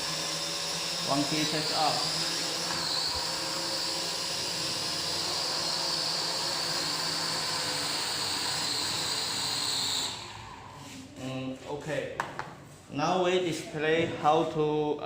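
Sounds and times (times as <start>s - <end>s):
drone propellers whirring: 0.0s - 10.6s.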